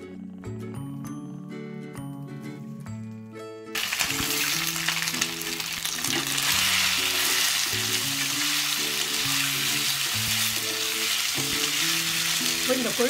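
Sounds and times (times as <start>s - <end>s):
soft background music: 0.0s - 13.0s
dumplings sizzling in oil: 3.8s - 13.0s.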